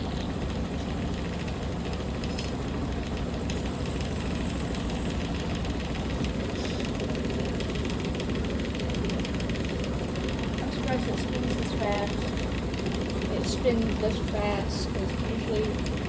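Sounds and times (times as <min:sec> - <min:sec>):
rapid fine ticking: 0:00.0 - 0:16.0
washing machine spinning: 0:00.0 - 0:16.0.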